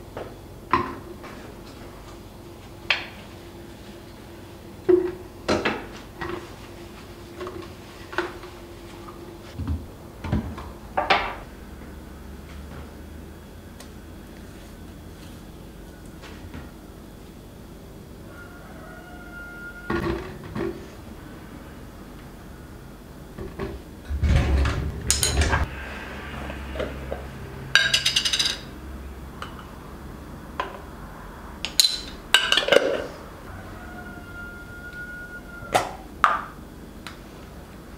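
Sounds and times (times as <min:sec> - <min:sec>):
knocks and clunks in kitchen: 0:09.6 - 0:11.4, 0:23.4 - 0:28.3
low hum: 0:23.9 - 0:30.2.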